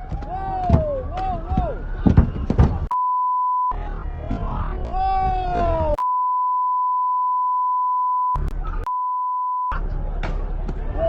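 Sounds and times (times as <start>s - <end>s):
protest crowd noise: 0.0s - 3.0s, 3.7s - 6.0s, 9.7s - 11.0s
person shouting: 0.3s - 1.8s, 4.9s - 6.0s
censor bleep: 2.9s - 3.8s, 6.0s - 9.8s.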